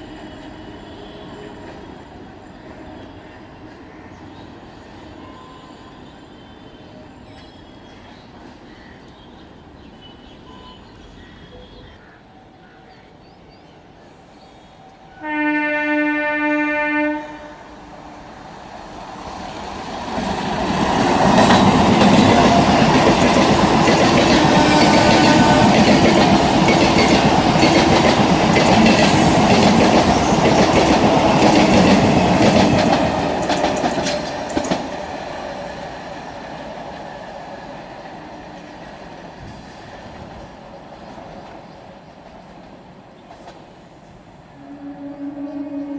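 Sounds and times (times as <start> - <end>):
train horn: 0.0 - 3.6, 15.0 - 18.4, 24.2 - 26.6, 44.5 - 45.9
train wheels clattering on rail: 18.9 - 43.9.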